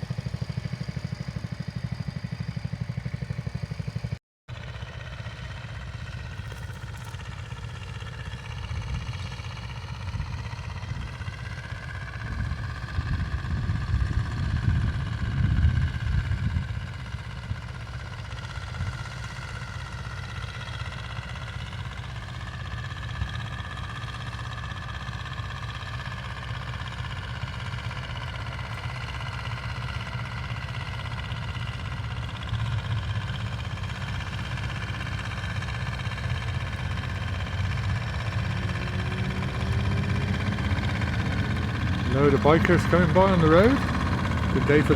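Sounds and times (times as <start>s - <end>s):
vehicle engines running: 0.0s - 44.9s.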